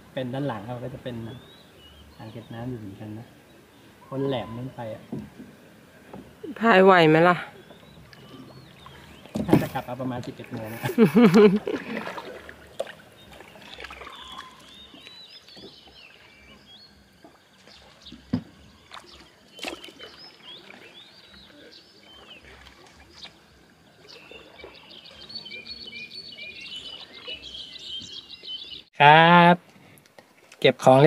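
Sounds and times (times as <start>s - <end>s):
small birds chirping: 0.2s - 29.0s
kayak paddle knocks and splashes: 5.0s - 6.5s, 7.7s - 21.5s, 22.1s - 25.3s.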